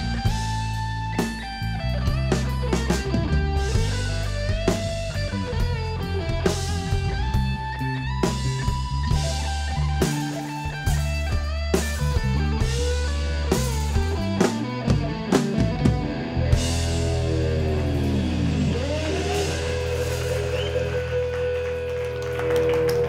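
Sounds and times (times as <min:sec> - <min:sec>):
guitar notes sliding down: 0:00.0 - 0:23.0
rock band playing: 0:00.0 - 0:23.0.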